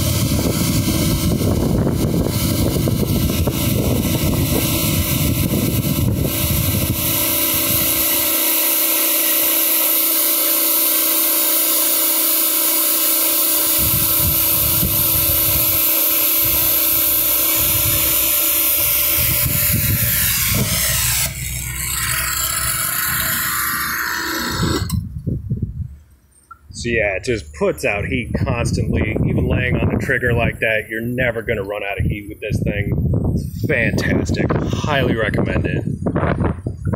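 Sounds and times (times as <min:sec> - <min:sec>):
pressure washer machine running: 0:00.0 - 0:25.0
pressure washer spray hissing: 0:13.2 - 0:21.4.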